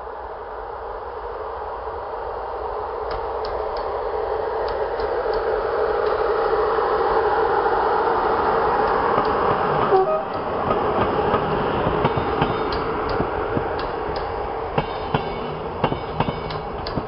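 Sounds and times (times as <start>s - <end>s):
electric train approaching: 0.0s - 17.0s
faint clicks: 3.1s - 3.9s, 4.6s - 6.2s, 12.7s - 14.3s, 16.5s - 17.0s.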